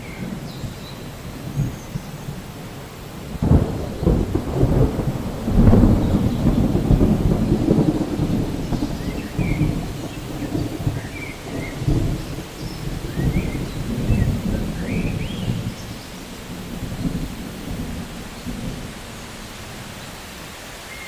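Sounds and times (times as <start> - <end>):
thunder rumbling: 0.0 - 20.4
steady rain: 0.0 - 21.0.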